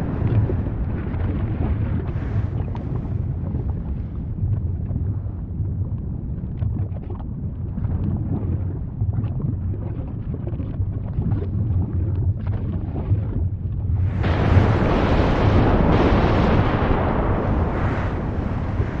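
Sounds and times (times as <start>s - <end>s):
volcanic eruption rumble: 0.0s - 9.6s, 11.1s - 19.0s
rushing blast: 13.9s - 19.0s.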